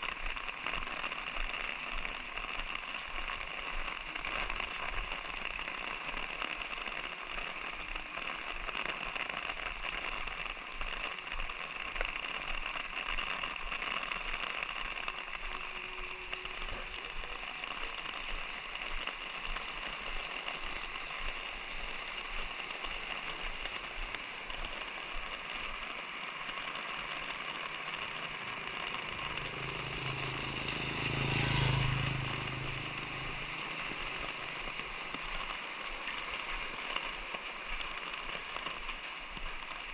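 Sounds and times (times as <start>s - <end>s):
light rain pattering: 0.0s - 39.9s
motor vehicle passing: 27.4s - 35.7s.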